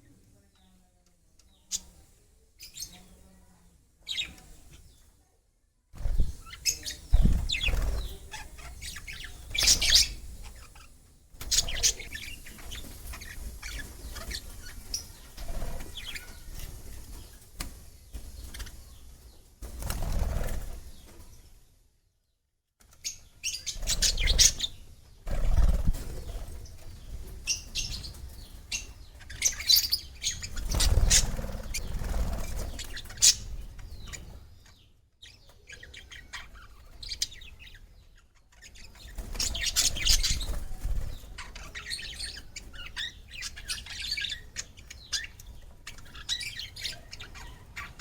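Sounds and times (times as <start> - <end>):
small birds chirping: 0.0 - 48.0
wings flapping: 6.0 - 10.6, 19.6 - 21.3, 25.3 - 28.3, 30.3 - 33.6, 39.0 - 41.6.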